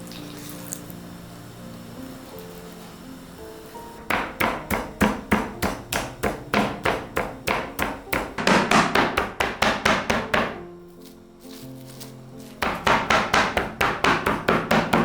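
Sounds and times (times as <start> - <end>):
knife chopping on cutting board: 4.1 - 10.6, 12.6 - 15.0.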